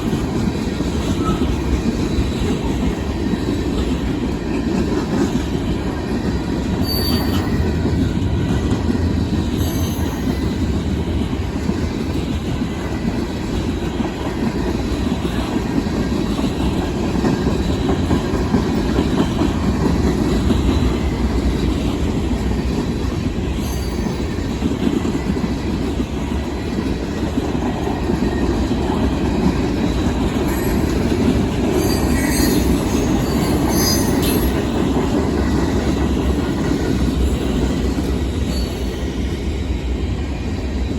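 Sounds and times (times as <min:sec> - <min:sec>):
train wheels rumbling on rail: 0:00.0 - 0:40.9
high-pitched wheel squeals: 0:06.8 - 0:07.6, 0:31.8 - 0:34.5.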